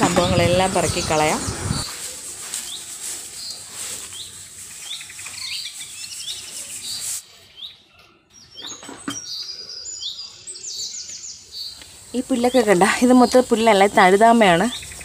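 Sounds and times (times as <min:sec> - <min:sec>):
steady hiss: 0:00.2 - 0:07.4
small bird chirping: 0:00.2 - 0:07.8, 0:08.4 - 0:15.0.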